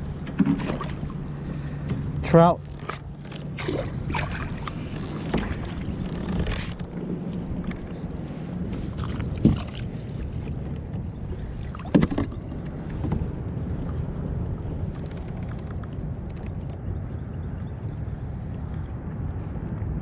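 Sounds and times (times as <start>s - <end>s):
steady low hum: 0.0s - 20.0s
water and wind noise: 0.0s - 20.0s
splashing: 3.4s - 5.9s.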